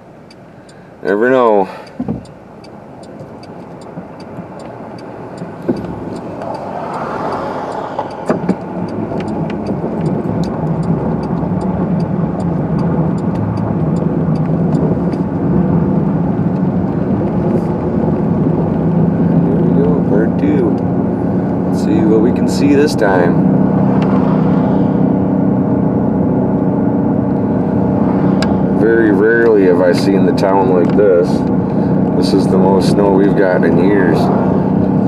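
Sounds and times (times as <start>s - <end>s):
car engine and road noise: 0.0s - 35.0s
faint regular ticking: 0.1s - 15.4s.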